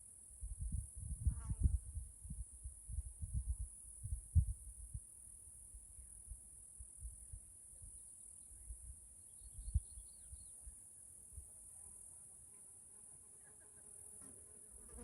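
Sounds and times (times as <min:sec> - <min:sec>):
low thumps on microphone: 0:00.4 - 0:05.0.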